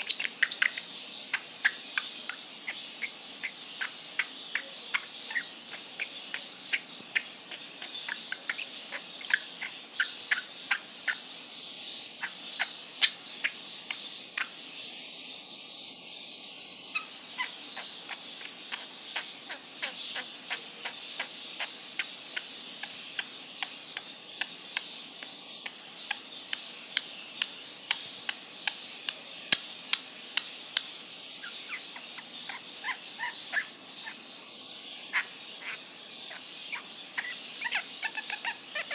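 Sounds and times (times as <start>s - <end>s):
bird chirping: 0.0s - 38.9s
steady high hiss: 0.0s - 38.9s.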